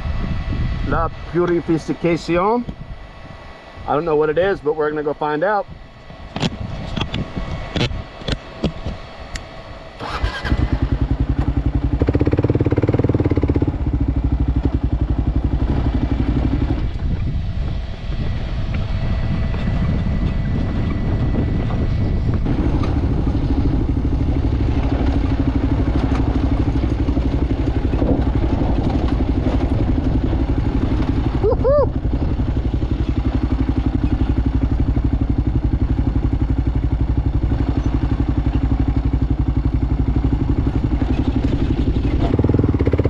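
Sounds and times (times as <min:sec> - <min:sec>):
motorcycle engine starting and running: 0:00.0 - 0:43.0.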